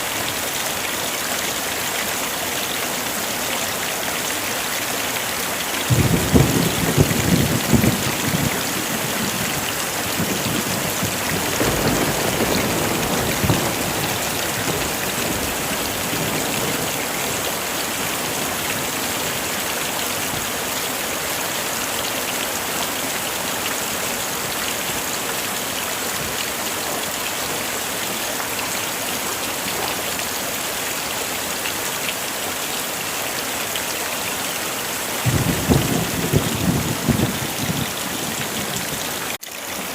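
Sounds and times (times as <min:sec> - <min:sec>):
heavy rain: 0:00.0 - 0:39.9
low rolls of thunder: 0:05.9 - 0:17.4, 0:35.2 - 0:38.8.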